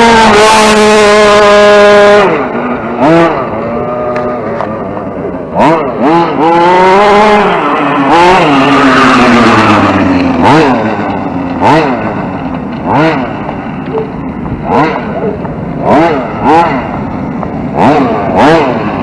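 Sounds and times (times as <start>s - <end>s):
toy truck motor revving: 0.0s - 12.2s, 17.7s - 19.0s.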